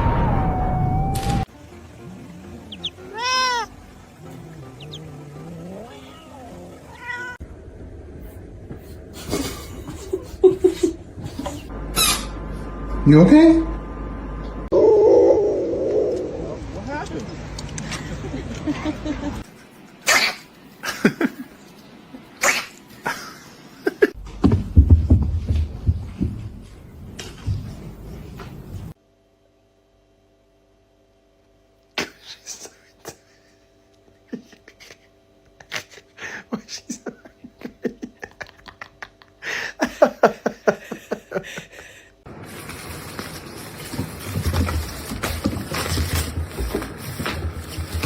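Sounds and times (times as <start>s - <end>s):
low rumbling noise: 0.0s - 3.0s, 6.6s - 17.6s
cat meowing: 2.8s - 3.7s, 4.6s - 7.4s.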